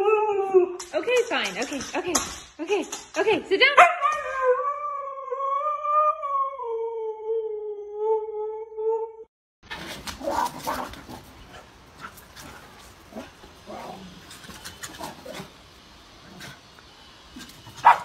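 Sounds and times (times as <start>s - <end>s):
small dog barking and yelping: 17.8s - 18.0s.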